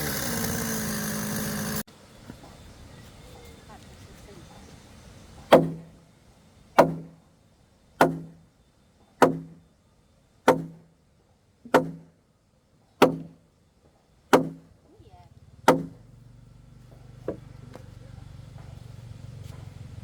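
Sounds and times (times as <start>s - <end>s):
tool knocking on wood: 5.5s - 5.9s, 6.8s - 7.1s, 8.0s - 8.4s, 9.2s - 9.6s, 10.5s - 10.8s, 11.8s - 12.1s, 14.4s - 14.6s, 15.7s - 16.0s.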